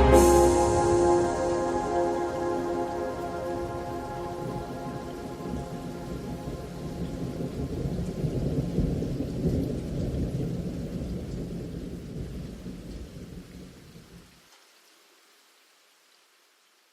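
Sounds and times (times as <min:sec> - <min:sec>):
thunder rumbling: 0:00.0 - 0:13.3
steady rain: 0:00.0 - 0:16.9.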